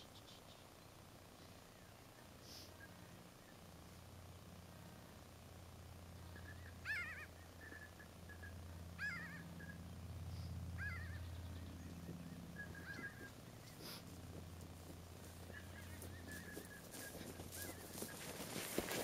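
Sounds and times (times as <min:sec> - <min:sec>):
bird chirps wavering in pitch: 0:06.2 - 0:09.9, 0:10.7 - 0:13.7
warbling bird call: 0:06.2 - 0:14.0, 0:15.2 - 0:19.0.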